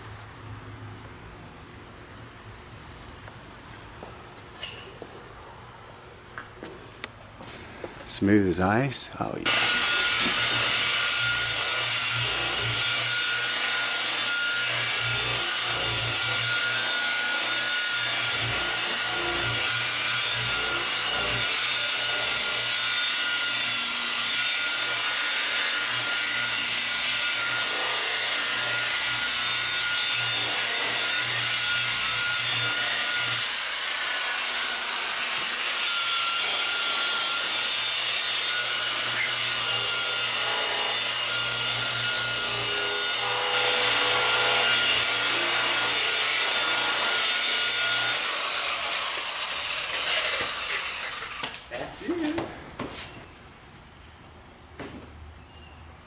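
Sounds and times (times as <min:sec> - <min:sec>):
electric paint buffer running: 0:09.4 - 0:33.8.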